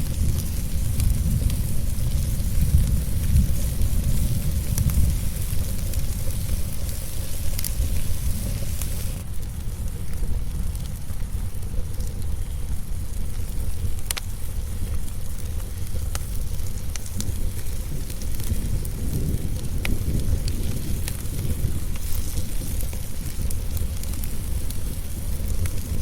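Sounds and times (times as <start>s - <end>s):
high hiss: 0.0s - 9.2s
low rumble: 0.0s - 26.0s
sharp pops of fire: 0.0s - 26.0s
wood fire crackling: 0.0s - 26.0s.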